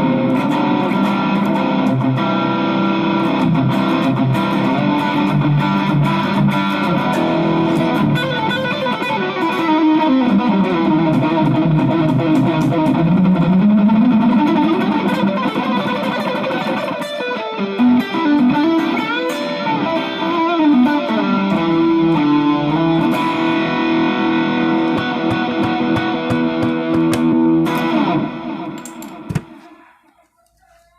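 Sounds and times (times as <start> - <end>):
distorted electric guitar playing: 0.0 - 29.6.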